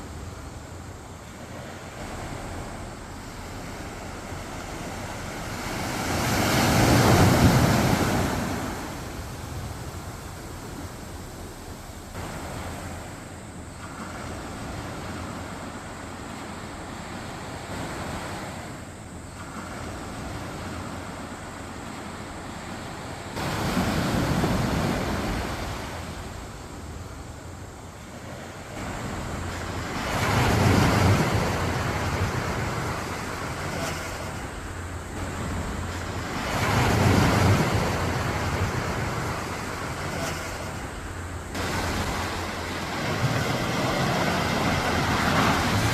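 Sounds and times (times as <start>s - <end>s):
waves washing onto sandy beach: 0.0s - 45.9s.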